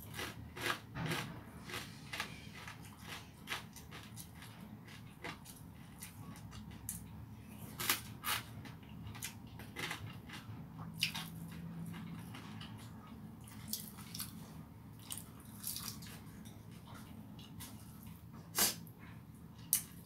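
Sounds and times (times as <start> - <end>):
person chewing wetly: 1.6 - 7.1, 7.8 - 18.2.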